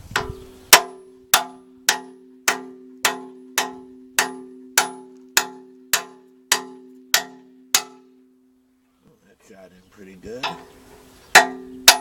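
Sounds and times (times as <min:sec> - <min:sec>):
hammer clanking on metal driver: 0:00.2 - 0:08.0, 0:10.4 - 0:10.8, 0:11.4 - 0:12.0.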